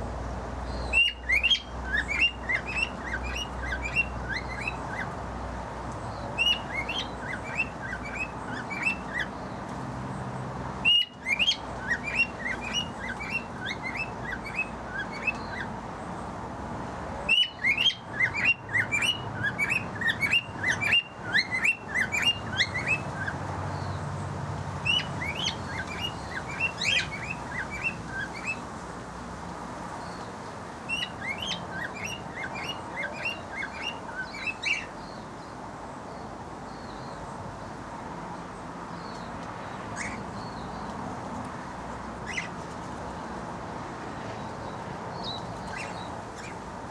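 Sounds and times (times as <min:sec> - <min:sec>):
birds chirping: 0:00.7 - 0:05.2, 0:06.0 - 0:16.2, 0:17.3 - 0:24.0, 0:24.8 - 0:28.6, 0:30.9 - 0:35.5, 0:44.4 - 0:46.6.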